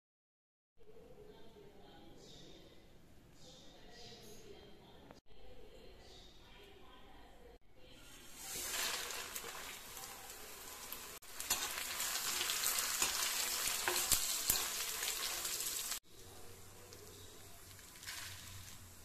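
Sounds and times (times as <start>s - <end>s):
chillies sizzling in hot oil: 8.0s - 19.0s.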